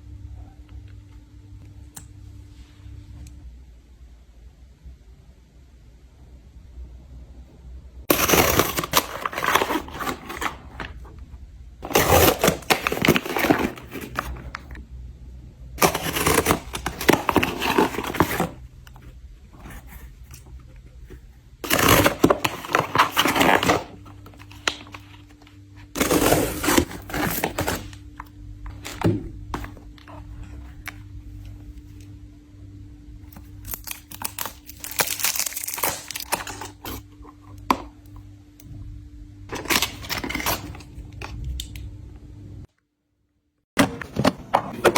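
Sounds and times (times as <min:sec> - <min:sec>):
steady low hum: 0:00.0 - 0:42.7
packaging crinkling and tearing: 0:08.1 - 0:11.0, 0:11.8 - 0:14.8, 0:15.8 - 0:18.6, 0:21.6 - 0:28.0, 0:33.4 - 0:37.0, 0:39.5 - 0:40.9.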